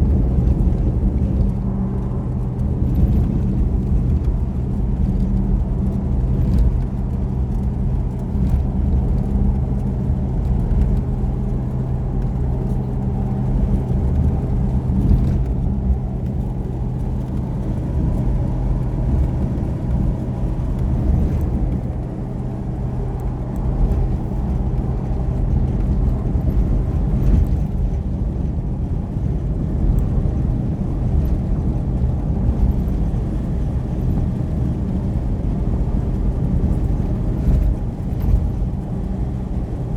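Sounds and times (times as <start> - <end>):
road noise: 0.0 - 39.9
vehicle engine running: 0.0 - 39.9.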